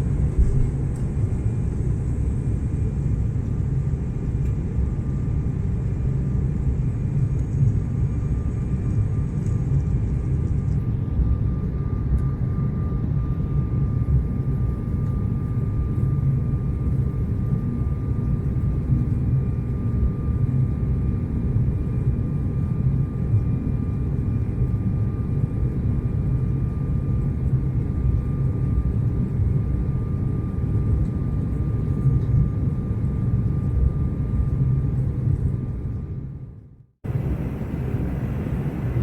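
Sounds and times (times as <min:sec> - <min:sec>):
high engine whine: 0:37.1 - 0:39.0
jet engines roaring: 0:37.1 - 0:39.0.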